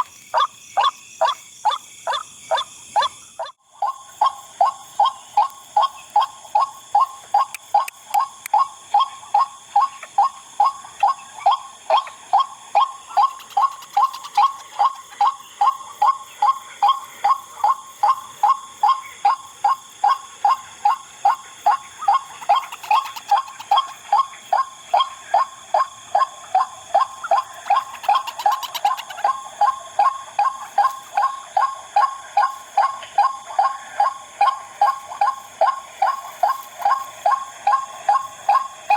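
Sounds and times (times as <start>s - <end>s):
waterhen wak calls: 0.0s - 15.3s, 21.3s - 24.4s, 26.5s - 32.2s.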